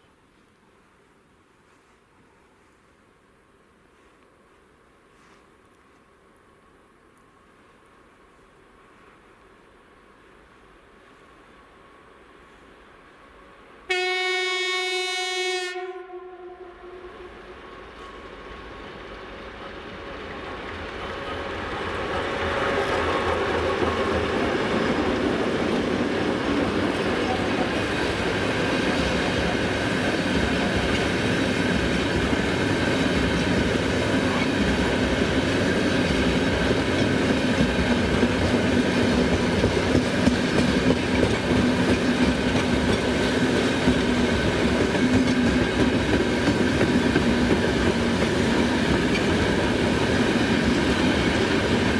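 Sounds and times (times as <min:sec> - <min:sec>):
diesel locomotive passing: 0:11.4 - 0:51.9.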